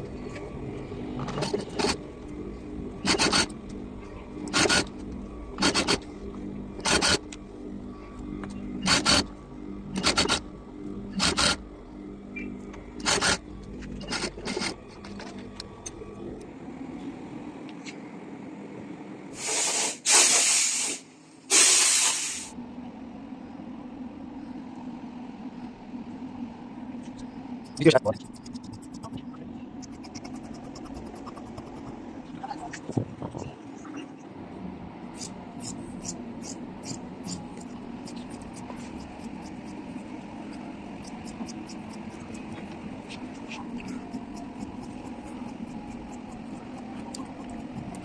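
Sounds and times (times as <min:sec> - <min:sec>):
steady low hum: 0:00.0 - 0:19.4, 0:22.5 - 0:48.0
hissing spray bursts: 0:19.4 - 0:22.5
rapid sharp clicks: 0:27.6 - 0:29.2, 0:29.8 - 0:32.0.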